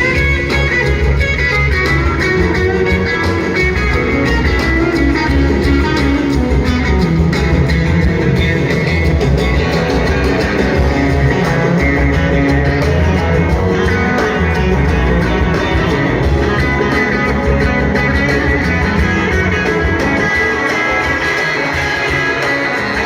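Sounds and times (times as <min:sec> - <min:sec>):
electric guitar: 0:00.0 - 0:23.0
live rock band: 0:00.0 - 0:23.0.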